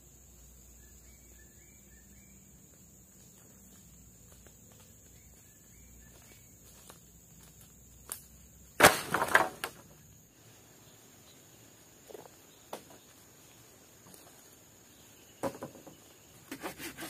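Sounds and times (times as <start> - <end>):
forest insects droning: 0.0 - 17.0
sharp knocks and cracks: 8.8 - 10.0.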